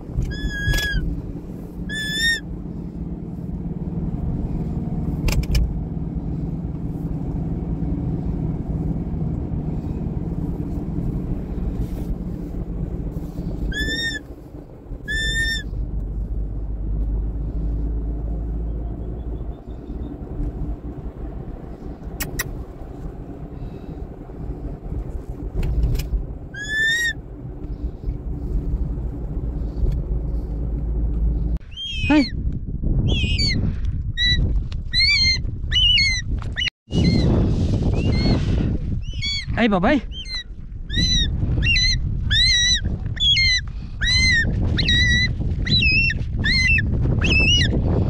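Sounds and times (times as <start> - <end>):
low rumble: 0.0 - 48.0
whistled bird calls: 0.3 - 1.0, 1.9 - 2.4, 13.7 - 14.2, 15.0 - 15.7, 18.7 - 20.2, 26.6 - 27.2, 31.7 - 32.3, 33.1 - 33.6, 34.2 - 37.3, 39.0 - 39.5, 40.1 - 47.7
sharp clicks: 22.0 - 22.6.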